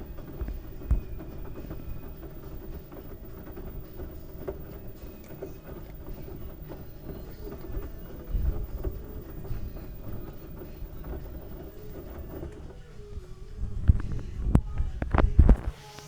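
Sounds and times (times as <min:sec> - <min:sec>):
washing machine knocks and thumps: 0:00.0 - 0:12.8
washing machine drum rumbling: 0:00.0 - 0:16.0.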